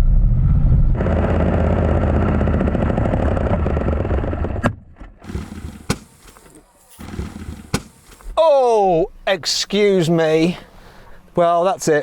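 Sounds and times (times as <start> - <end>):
engine knocking and clattering: 1.0 - 4.6, 5.2 - 6.4, 7.0 - 8.1
engine dying with sharp clack: 1.0 - 8.4.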